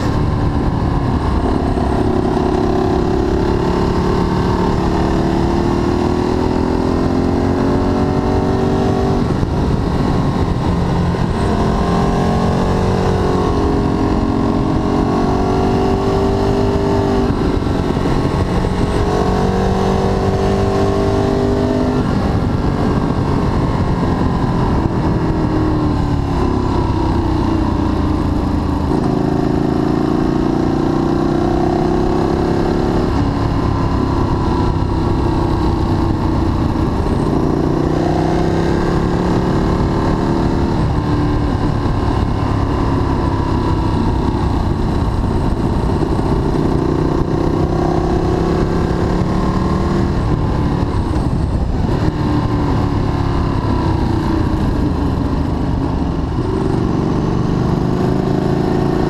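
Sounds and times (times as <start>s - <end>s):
wind rushing: 0.0s - 58.8s.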